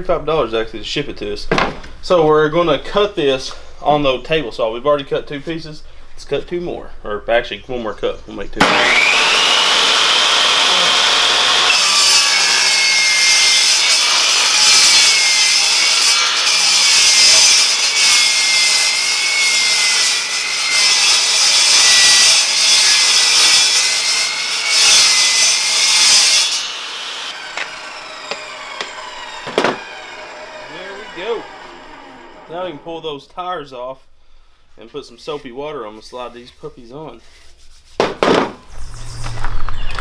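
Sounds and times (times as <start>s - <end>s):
saw blade winding down: 8.6s - 32.8s, 38.7s - 40.0s
table saw cutting: 8.6s - 32.8s, 38.0s - 40.0s.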